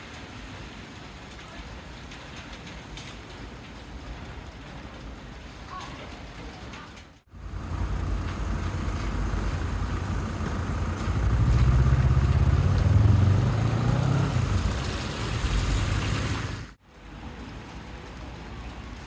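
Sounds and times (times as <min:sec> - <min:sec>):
rain hissing: 0:00.0 - 0:19.0
vehicle driving past: 0:07.3 - 0:16.8.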